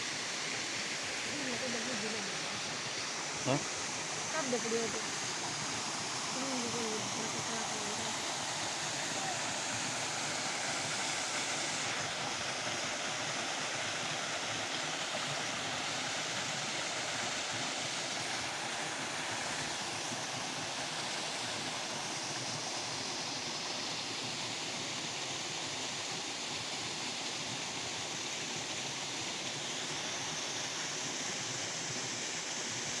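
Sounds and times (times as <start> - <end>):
waterfall rushing: 0.0 - 22.8.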